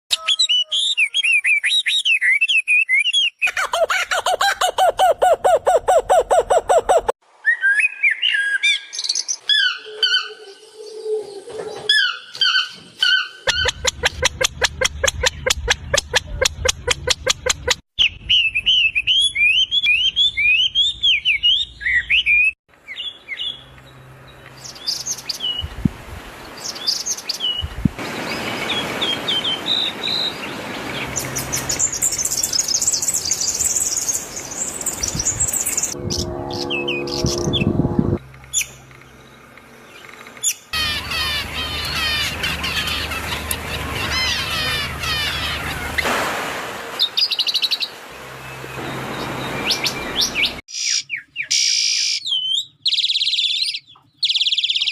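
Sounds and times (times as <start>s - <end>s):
small birds chirping: 38.5s - 46.0s, 47.0s - 54.9s
harsh bird call: 40.4s - 46.1s.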